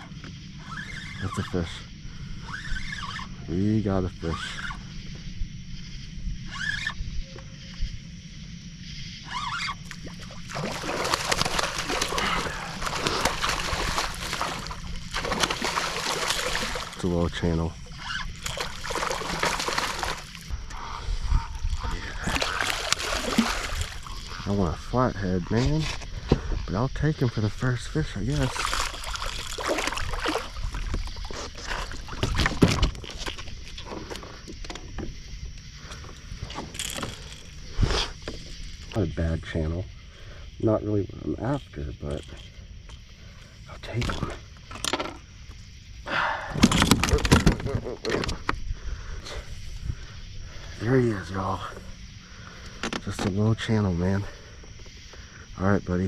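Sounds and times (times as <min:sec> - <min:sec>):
fish splashing at water surface: 0:09.9 - 0:17.1, 0:18.4 - 0:20.5, 0:21.8 - 0:24.4, 0:28.3 - 0:32.9.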